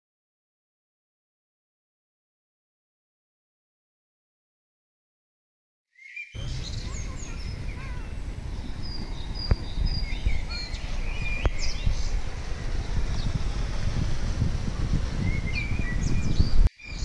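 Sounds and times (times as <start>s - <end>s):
small birds chirping and whistling: 6.0s - 17.0s
low rumble: 6.4s - 17.0s.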